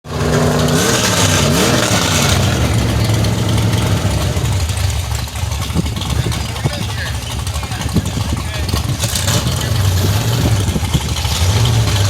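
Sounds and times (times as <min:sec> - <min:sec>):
pickup truck engine revving: 0:00.0 - 0:12.0.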